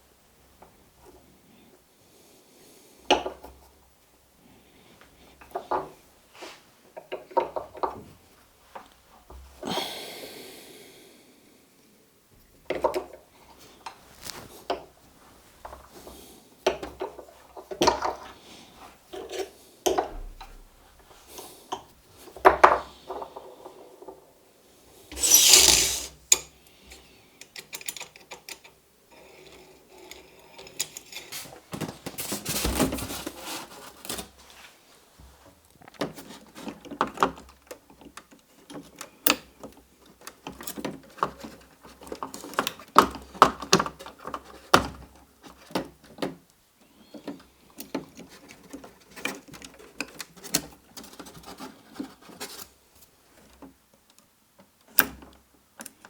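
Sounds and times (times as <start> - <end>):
scraping noise: 25.2 - 26.1
metal parts and tools clicking: 25.2 - 26.5.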